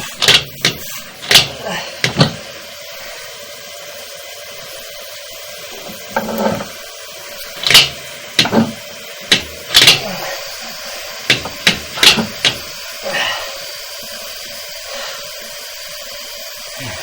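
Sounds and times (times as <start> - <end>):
steady background hum: 0.0 - 17.0
sharp knocks and clunks: 0.2 - 2.4, 7.6 - 10.1, 11.3 - 12.7.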